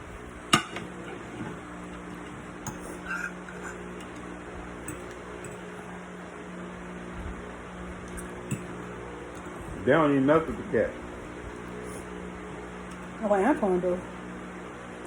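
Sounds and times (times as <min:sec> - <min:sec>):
steady low hum: 0:00.0 - 0:15.0
cutlery clinking against a plate: 0:00.5 - 0:05.7, 0:08.1 - 0:09.5.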